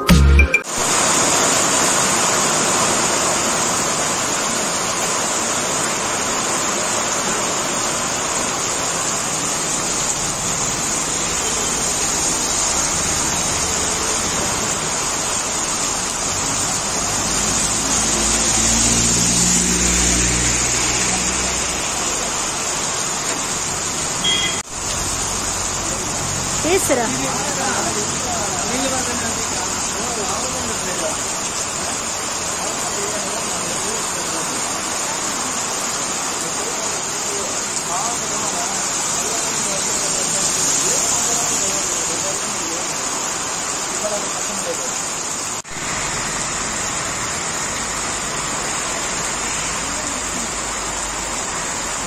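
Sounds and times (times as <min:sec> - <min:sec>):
heavy rain pouring: 0:00.0 - 0:52.0
passing vehicle engine hum: 0:16.4 - 0:23.1.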